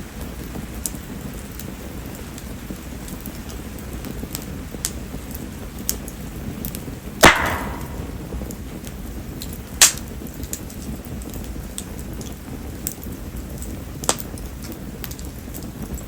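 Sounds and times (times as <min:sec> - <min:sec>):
campfire burning: 0:00.0 - 0:16.0
small ticks of burning wood: 0:00.0 - 0:16.0
steady rain: 0:00.0 - 0:16.0
sharp snaps of wood: 0:07.2 - 0:08.1.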